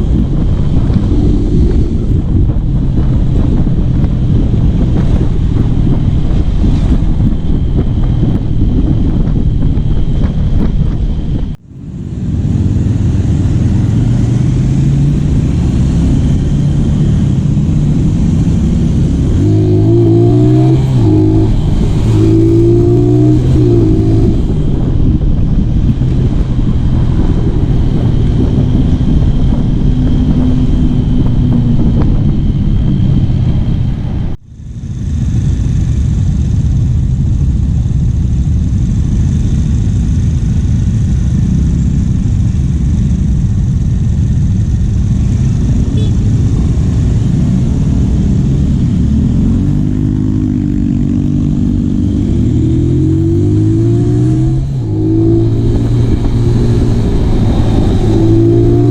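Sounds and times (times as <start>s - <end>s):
motorcycle engine running: 0.0s - 58.9s
wind noise on microphone: 0.0s - 58.9s.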